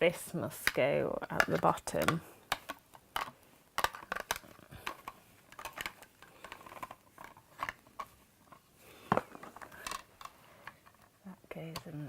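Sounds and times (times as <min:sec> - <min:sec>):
small plastic clicks and taps: 0:00.6 - 0:08.1.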